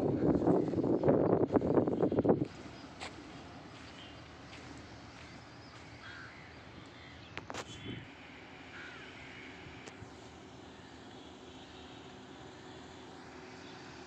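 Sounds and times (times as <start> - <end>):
bird harsh calls: 8.7 - 9.6.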